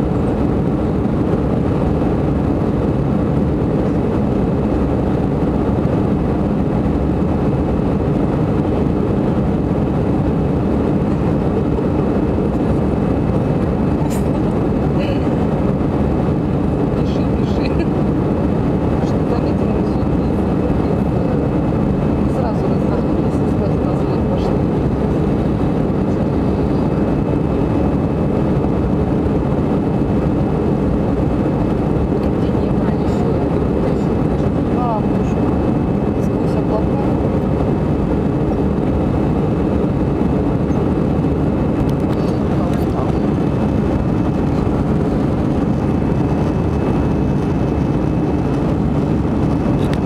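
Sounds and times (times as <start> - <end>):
jet engines rumbling: 0.0 - 50.0.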